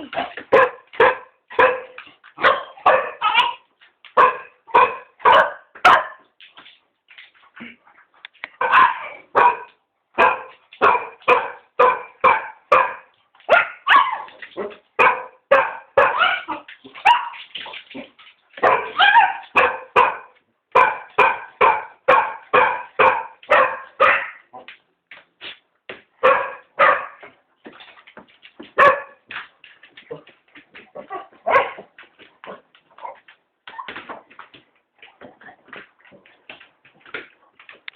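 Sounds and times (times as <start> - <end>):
dogs barking rapidly: 0.4 - 3.6, 4.2 - 6.3, 8.6 - 17.5, 18.6 - 24.5, 26.2 - 27.3, 28.6 - 29.4, 31.0 - 33.3.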